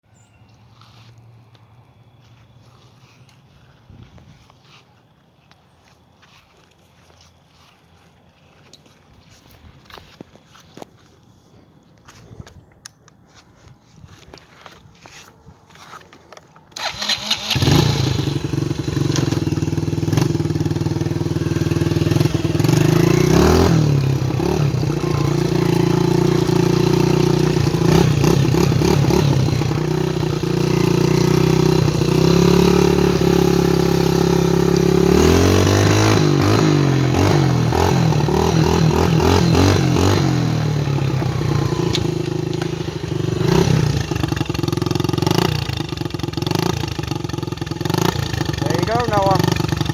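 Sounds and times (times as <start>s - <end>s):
dirt bike engine starting and revving: 16.7s - 49.9s.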